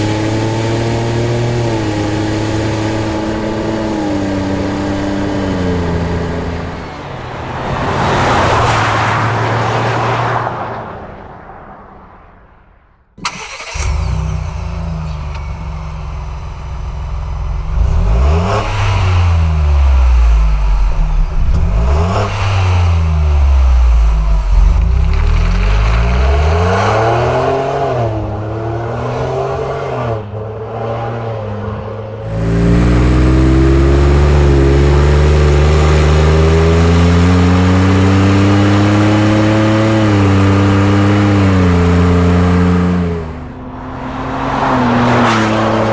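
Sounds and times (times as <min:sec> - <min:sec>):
engine revving: 0:13.2 - 0:45.9.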